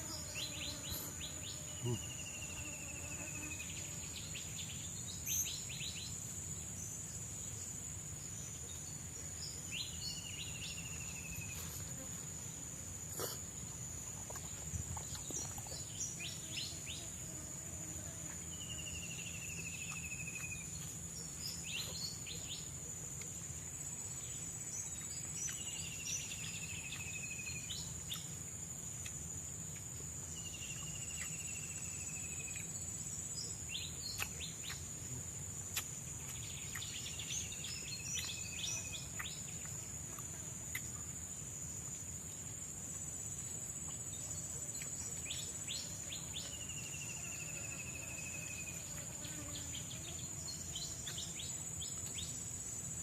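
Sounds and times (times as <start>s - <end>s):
high-pitched insect drone: 0.0s - 3.8s.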